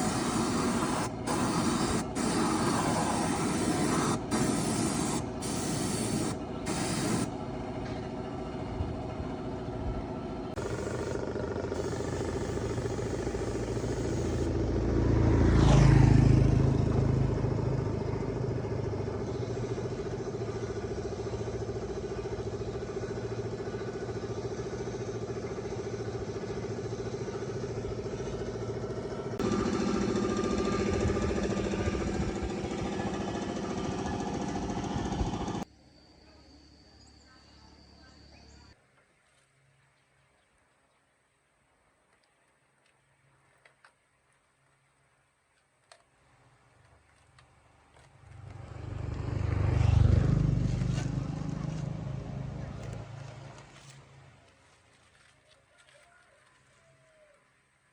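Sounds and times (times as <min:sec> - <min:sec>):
engine running: 0:00.0 - 0:35.7, 0:46.8 - 0:55.3.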